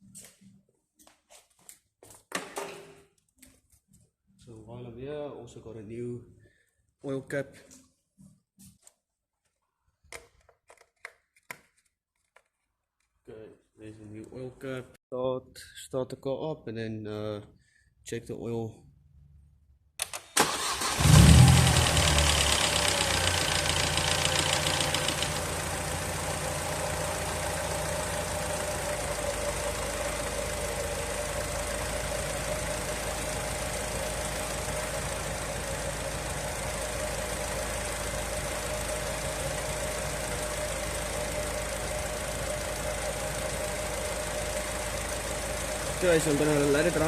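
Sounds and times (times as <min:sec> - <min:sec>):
car engine starting and idling: 0:20.0 - 0:47.0.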